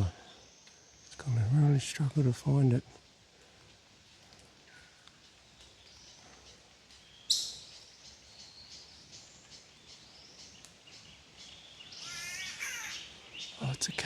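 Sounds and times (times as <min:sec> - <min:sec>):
wild birds chirping: 0:00.0 - 0:14.0
loud sharp bird call: 0:12.0 - 0:13.1.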